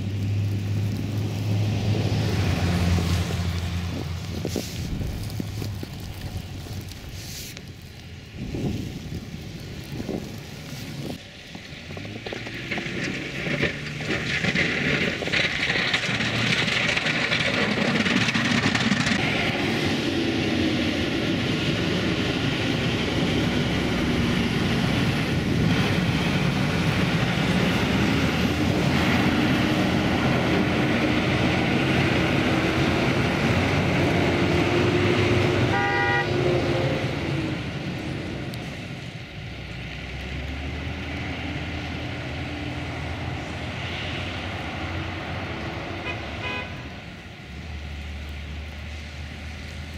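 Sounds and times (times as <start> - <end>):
vehicle engine and road rush: 0.0 - 49.9
car horn toot: 35.7 - 36.3, 46.0 - 46.8.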